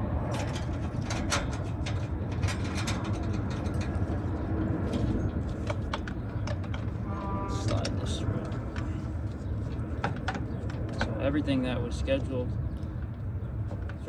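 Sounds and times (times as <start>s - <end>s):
steady low rumble: 0.0s - 13.7s.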